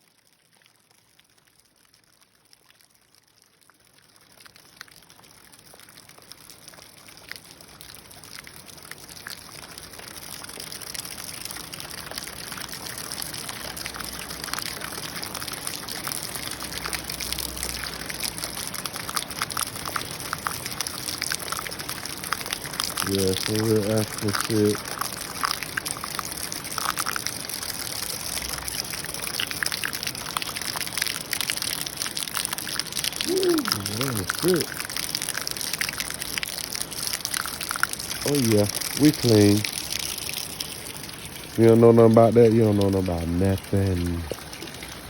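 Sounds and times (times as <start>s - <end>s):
water running and pouring: 0.0s - 45.0s
heavy rain falling: 33.2s - 34.8s, 38.2s - 39.6s.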